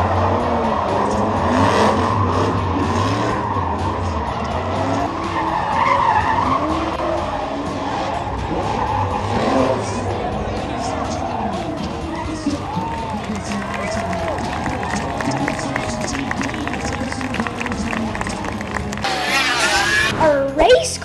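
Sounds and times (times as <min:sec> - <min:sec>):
race car engines revving: 0:00.0 - 0:20.8
tyre and road noise: 0:00.0 - 0:20.8.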